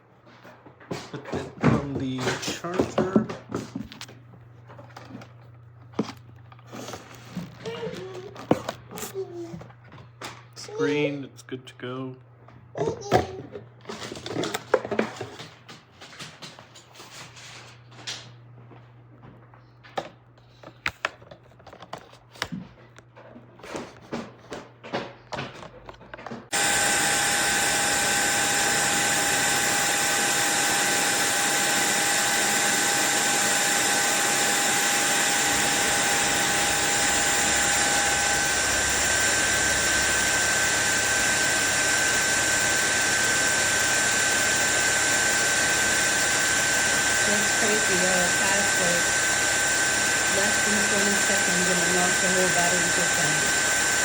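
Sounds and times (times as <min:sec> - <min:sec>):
vacuum cleaner motor whine: 0:01.2 - 0:11.2, 0:13.1 - 0:15.4, 0:26.3 - 0:54.0.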